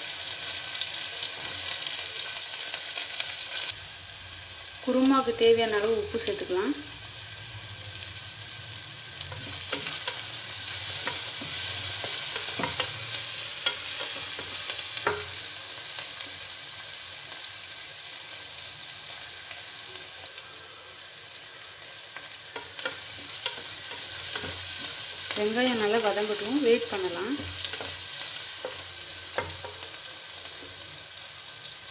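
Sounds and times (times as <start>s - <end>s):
onions sizzling in oil: 0.0s - 31.9s
spatula scraping pan: 9.3s - 15.4s.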